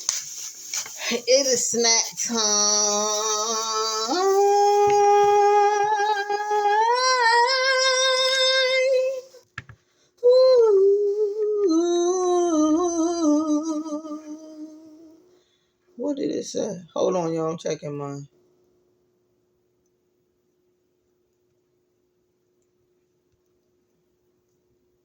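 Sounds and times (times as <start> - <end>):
person singing long held notes: 2.4 - 9.4, 10.2 - 15.2.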